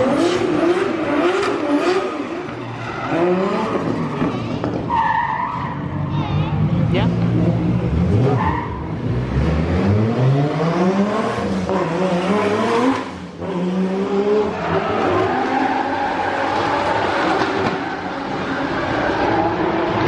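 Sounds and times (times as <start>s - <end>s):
car engine revving: 0.0s - 20.0s
tyres skidding: 0.0s - 20.0s.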